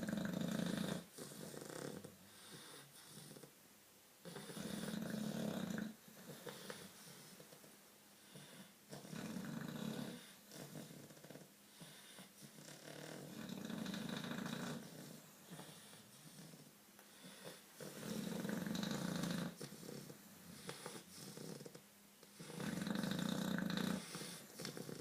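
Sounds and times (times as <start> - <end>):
dog breathing: 0.0 - 3.5, 4.2 - 7.6, 8.2 - 25.0
dog snoring: 0.0 - 3.5, 4.2 - 7.6, 8.2 - 25.0.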